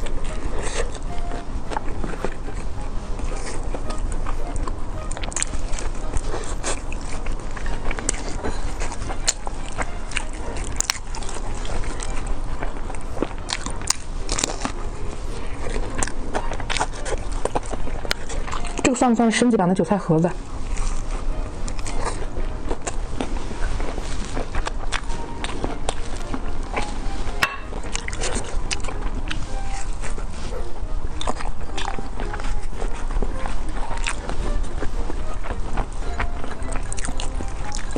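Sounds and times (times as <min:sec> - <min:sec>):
chewing crisp pie: 0:00.0 - 0:37.9
crust crunching: 0:03.3 - 0:18.9.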